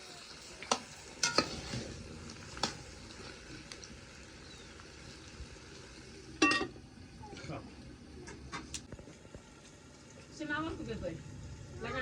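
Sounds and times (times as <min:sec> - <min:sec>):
utensils clinking against pot: 0:00.7 - 0:01.8.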